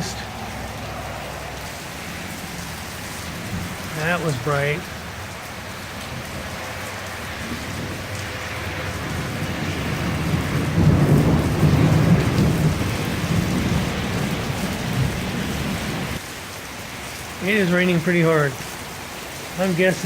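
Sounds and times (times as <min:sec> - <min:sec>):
heavy rain: 0:00.0 - 0:20.0
thunder rumbling: 0:02.0 - 0:05.2, 0:07.2 - 0:16.2.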